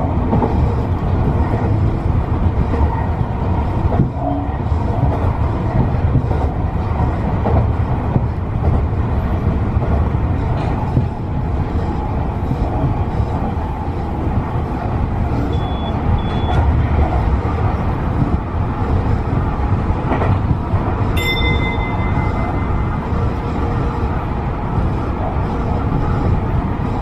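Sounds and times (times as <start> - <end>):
train wheels rumbling: 0.0 - 27.0
short high beeps: 15.5 - 16.6.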